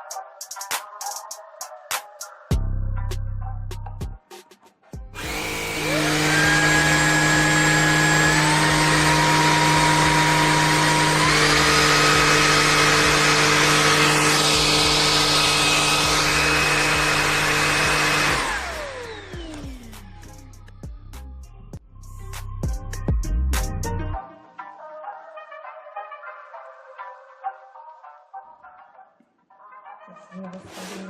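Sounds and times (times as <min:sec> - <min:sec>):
vacuum cleaner motor whining: 0:05.2 - 0:19.9.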